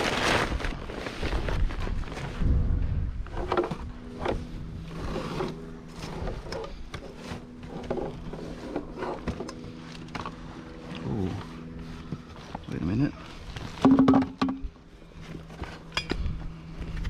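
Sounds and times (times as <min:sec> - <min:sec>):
vehicle engine humming: 0:02.5 - 0:17.0
knocks and rattles: 0:13.8 - 0:14.6.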